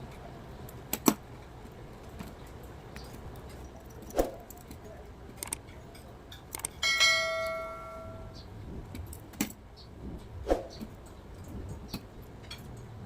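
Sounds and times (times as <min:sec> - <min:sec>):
small parts clicking and knocking: 0:00.1 - 0:07.0
metal object clinking and ringing: 0:06.0 - 0:08.4.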